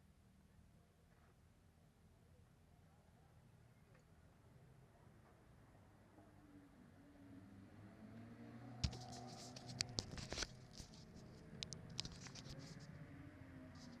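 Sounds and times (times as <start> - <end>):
scratching from handling: 8.8 - 13.0
sharp clicks: 11.6 - 12.5.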